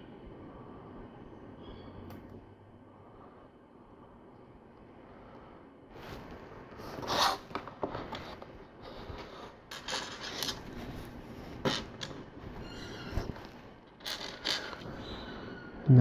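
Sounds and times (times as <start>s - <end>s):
rustling and scraping pieces: 6.8s - 15.0s.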